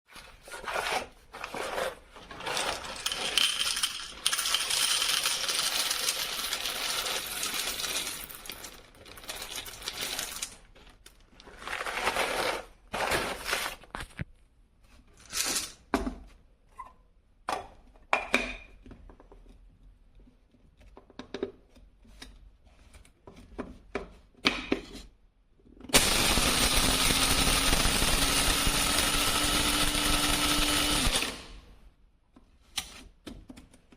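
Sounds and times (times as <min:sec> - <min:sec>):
small hard objects rattling: 0:01.6 - 0:13.9
coffee grinder motor humming: 0:26.0 - 0:31.6.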